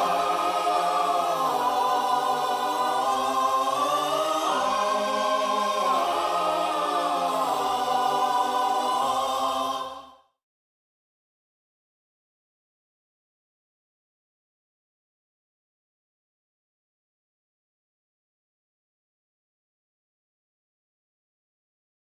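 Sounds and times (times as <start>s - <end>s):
choral singing: 0.0s - 10.4s.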